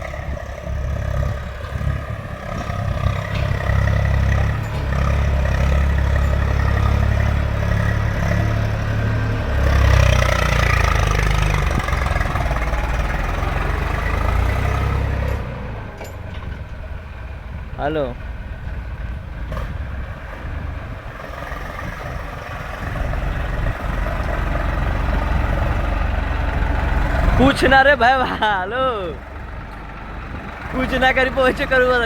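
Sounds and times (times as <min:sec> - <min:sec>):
tractor engine under load: 0:00.0 - 0:32.0.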